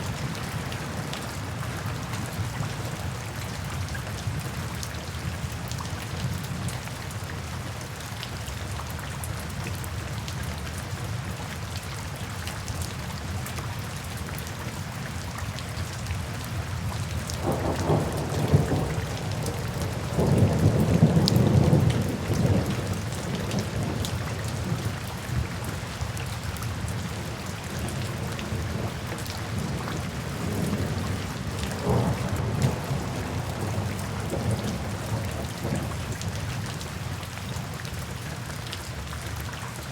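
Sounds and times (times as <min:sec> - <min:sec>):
steady rain falling: 0:00.0 - 0:39.9
thunder rumbling: 0:17.4 - 0:24.0, 0:29.5 - 0:36.1.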